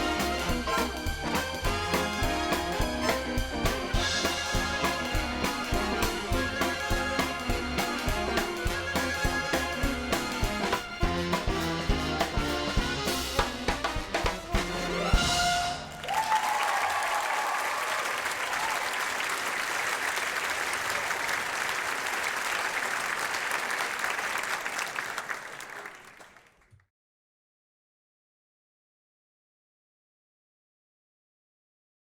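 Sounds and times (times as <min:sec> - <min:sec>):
jazz band with brass and drums: 0:00.0 - 0:17.3
audience applause: 0:15.8 - 0:26.7.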